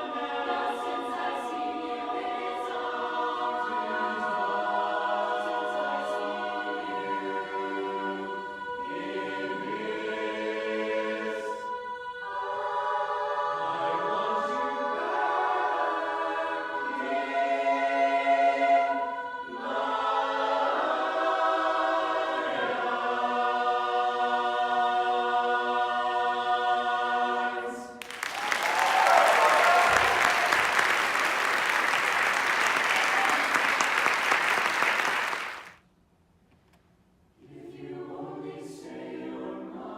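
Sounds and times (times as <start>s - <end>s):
chorus singing a cappella: 0.0s - 35.6s, 37.4s - 39.9s
audience applause: 28.0s - 35.8s.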